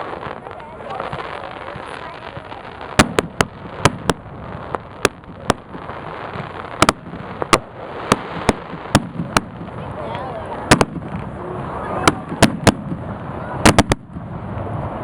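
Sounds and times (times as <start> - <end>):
fireworks cracks and bangs: 0.0 - 15.0.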